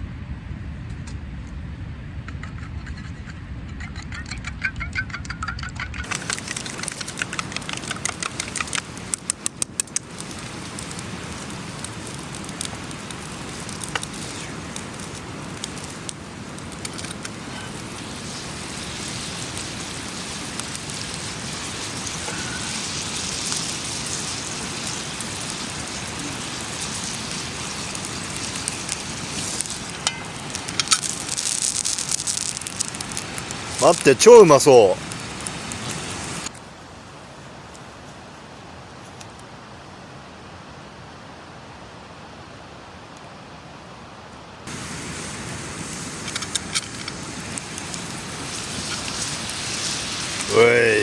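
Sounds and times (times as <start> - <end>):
sharp snaps: 5.2 - 10.2
food sizzling in a pan: 6.0 - 36.5, 44.7 - 51.0.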